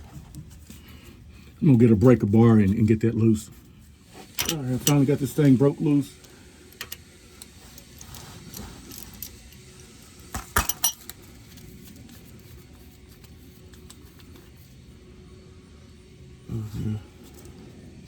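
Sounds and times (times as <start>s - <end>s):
metal tools clinking on plug: 4.4s - 5.2s, 6.8s - 7.0s, 10.4s - 11.2s.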